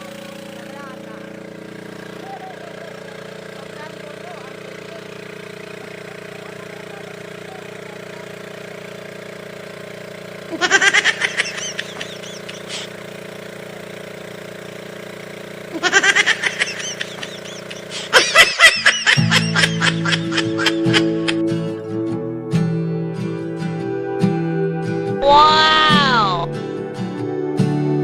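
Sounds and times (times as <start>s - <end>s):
engine humming: 0.0s - 28.0s
people laughing: 2.1s - 3.6s, 10.5s - 12.9s, 15.7s - 21.5s
music: 19.2s - 28.0s.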